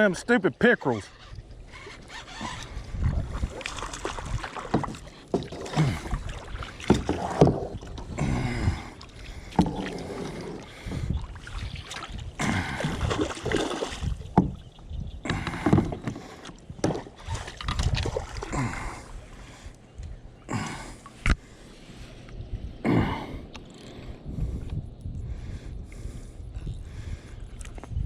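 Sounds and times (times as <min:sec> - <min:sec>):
water sloshing: 0:01.0 - 0:22.2
knocks against kayak hull: 0:06.8 - 0:07.7.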